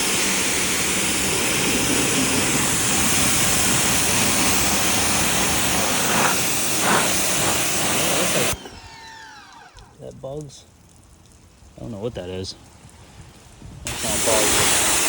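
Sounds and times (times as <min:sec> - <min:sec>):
pressure washer spray hissing: 0:00.0 - 0:08.6, 0:13.9 - 0:15.0
pressure washer motor: 0:00.0 - 0:10.1, 0:13.9 - 0:15.0.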